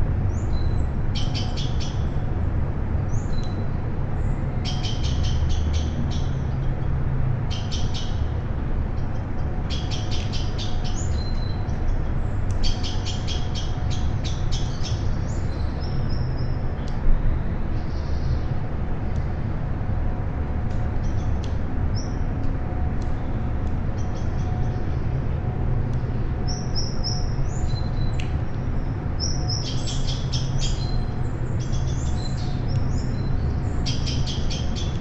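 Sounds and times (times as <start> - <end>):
songbirds calling: 0.3 - 2.2, 3.1 - 6.6, 7.4 - 17.0, 25.9 - 35.0.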